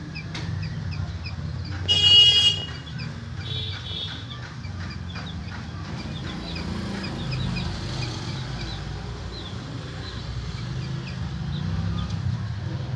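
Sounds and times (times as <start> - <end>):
chickens clucking: 2.6 - 12.9.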